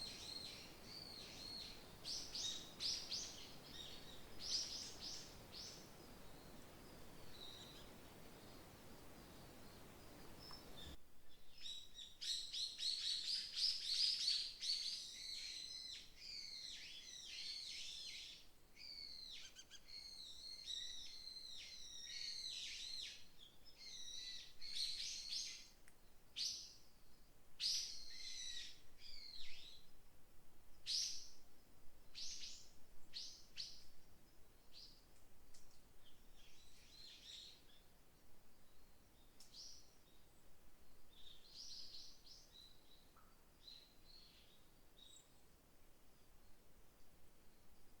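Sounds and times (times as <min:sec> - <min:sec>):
faint hiss: 0:00.0 - 0:15.4
small birds chirping: 0:00.0 - 0:25.8.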